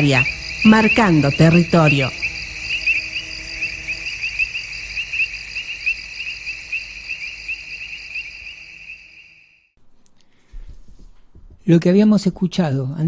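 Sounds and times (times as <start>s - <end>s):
cricket chirping: 0.0s - 9.8s.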